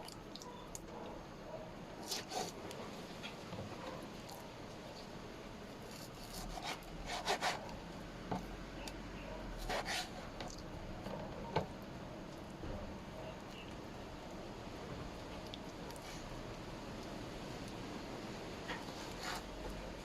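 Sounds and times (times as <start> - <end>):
rubbing and scraping strokes: 2.0 - 2.6, 5.9 - 7.7, 9.6 - 10.3, 18.7 - 19.6.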